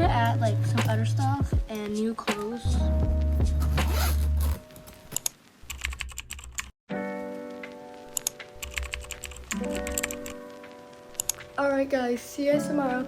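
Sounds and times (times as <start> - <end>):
background music: 0.0 - 5.1, 6.9 - 13.0
keyboard typing clicks: 5.2 - 6.7, 8.1 - 10.4, 11.2 - 11.5.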